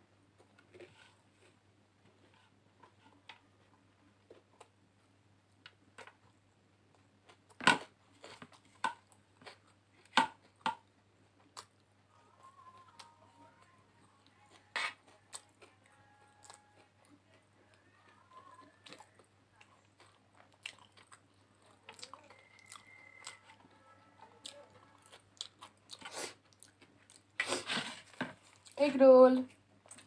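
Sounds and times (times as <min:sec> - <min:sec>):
chewing and crunching onion: 0:05.6 - 0:12.0, 0:12.7 - 0:28.8.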